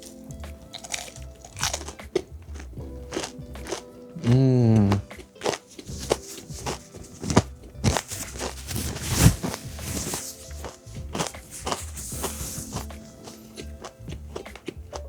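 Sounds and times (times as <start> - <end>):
background music: 0.0 - 15.0
crunchy chewing: 0.0 - 15.0
person humming mmm: 3.6 - 8.6.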